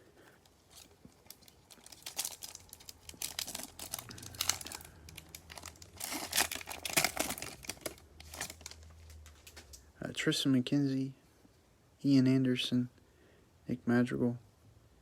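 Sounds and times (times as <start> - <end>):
foil wrapper tearing and crinkling: 0.5 - 9.6.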